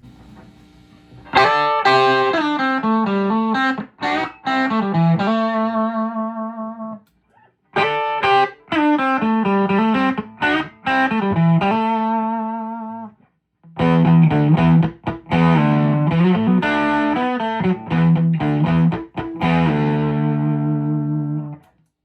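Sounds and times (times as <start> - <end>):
clean electric guitar phrase: 1.3 - 6.9, 13.8 - 21.6.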